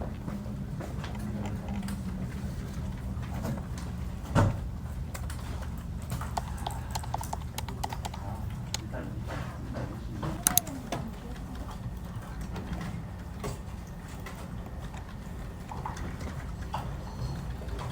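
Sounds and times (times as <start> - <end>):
steady low hum: 0.0 - 17.9
keyboard key clicks: 6.3 - 8.8, 10.4 - 10.8.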